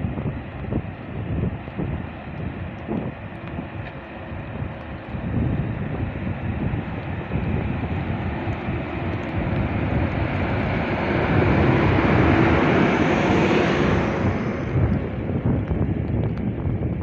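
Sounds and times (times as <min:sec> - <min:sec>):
electric locomotive passing: 0:03.4 - 0:16.7.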